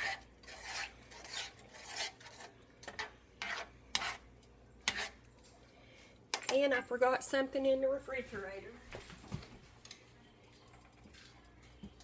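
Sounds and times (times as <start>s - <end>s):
spoon scraping a pot: 0.0s - 5.5s.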